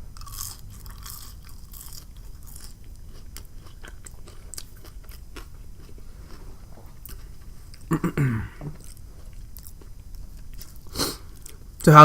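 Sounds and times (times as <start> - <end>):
person crunching fried food: 0.1 - 8.0.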